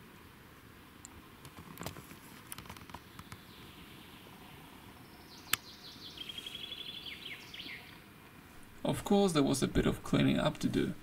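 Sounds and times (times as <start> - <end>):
light rustles and ticks: 1.0 - 3.5
songbird singing with trill: 3.1 - 8.0.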